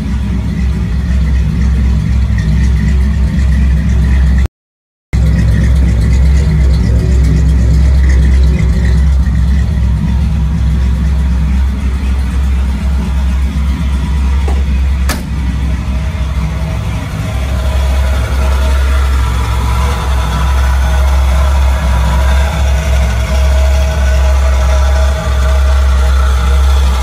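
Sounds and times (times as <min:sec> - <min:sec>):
car engine idling: 0:00.0 - 0:04.5, 0:05.2 - 0:27.0.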